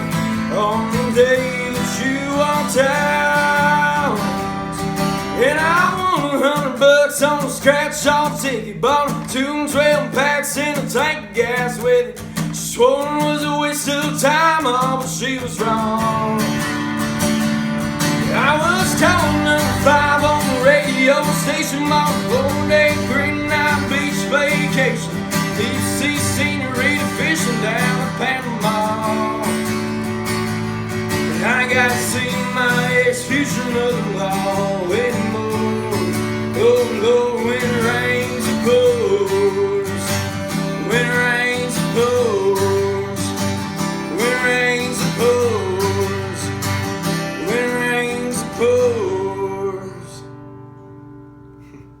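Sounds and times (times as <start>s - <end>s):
instrumental country music: 0.0s - 52.0s.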